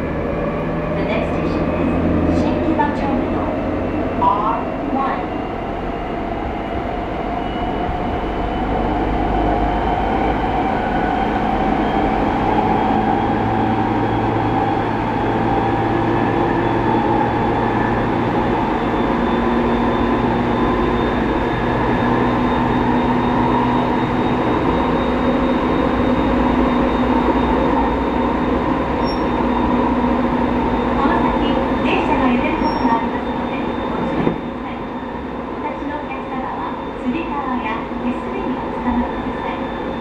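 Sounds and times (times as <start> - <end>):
train wheel and rail rumble: 0.0 - 40.0.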